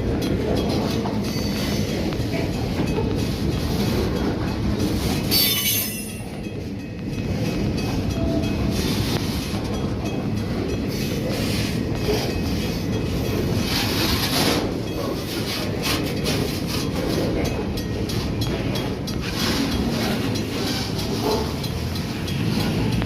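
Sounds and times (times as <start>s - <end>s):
freight train rumbling: 0.0s - 23.0s
wheels clicking over rail joints: 0.0s - 23.0s.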